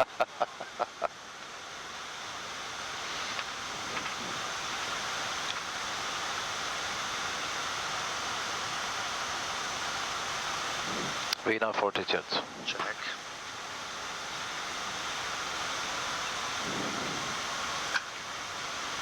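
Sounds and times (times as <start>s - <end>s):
aircraft cockpit rushing noise: 10.8s - 13.2s, 16.2s - 18.1s.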